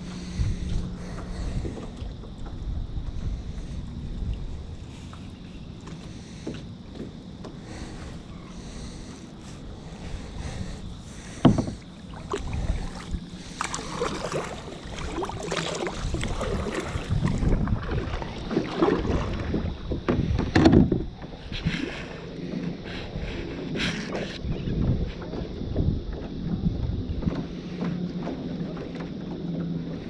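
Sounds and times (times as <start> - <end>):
paddle strokes splashing: 0.0 - 20.5
knocks against kayak hull: 11.4 - 11.8, 19.5 - 21.1.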